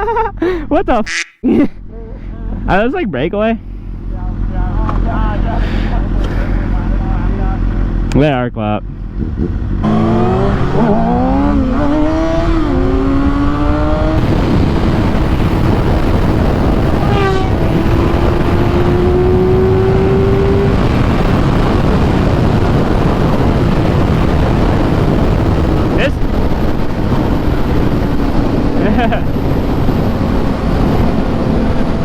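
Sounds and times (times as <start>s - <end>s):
motorcycle engine accelerating: 3.6s - 32.0s
wind rush on microphone: 9.0s - 32.0s.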